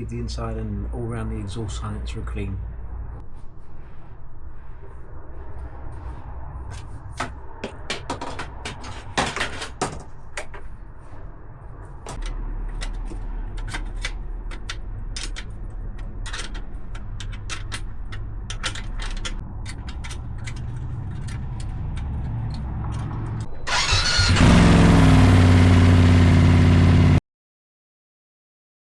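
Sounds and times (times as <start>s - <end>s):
motorcycle engine idling and revving: 19.7s - 27.2s.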